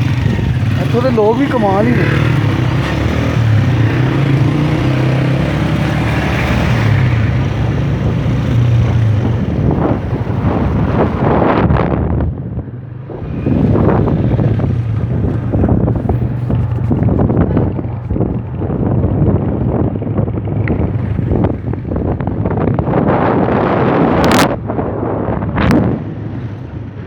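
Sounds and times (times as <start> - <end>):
motorcycle engine running: 0.0 - 27.0
wind buffeting microphone: 0.0 - 27.0.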